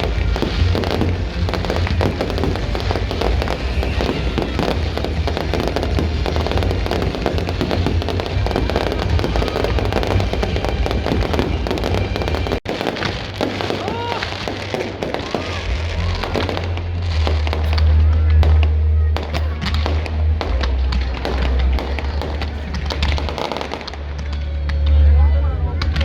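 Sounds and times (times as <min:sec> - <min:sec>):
deep rumble: 0:00.0 - 0:24.2
fireworks bangs and crackles: 0:00.0 - 0:25.1.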